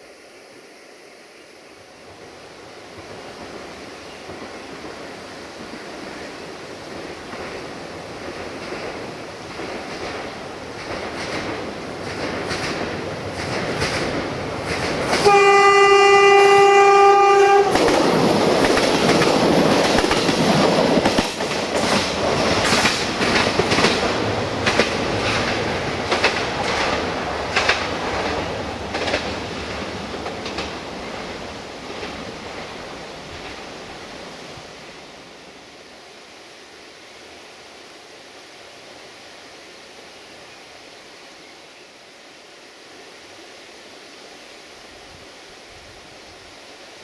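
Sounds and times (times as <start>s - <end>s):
train rumble: 1.6s - 41.0s
train wheels clacking over rail joints: 7.0s - 15.6s, 17.5s - 32.7s
train horn blast: 15.2s - 17.8s.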